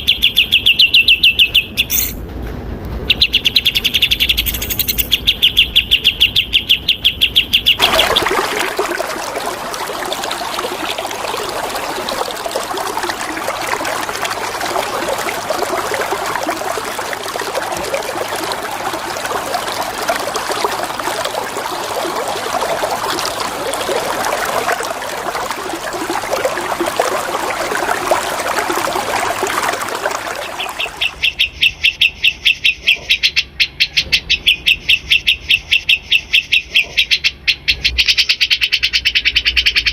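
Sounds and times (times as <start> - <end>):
bird trilling: 0.0 - 2.2, 3.1 - 7.8
flowing water: 7.7 - 31.4.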